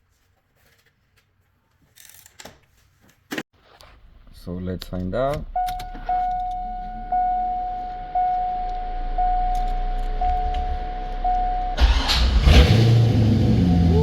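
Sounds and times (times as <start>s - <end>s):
car engine idling: 5.4s - 14.0s
car warning chime: 5.5s - 12.3s, 13.0s - 14.0s.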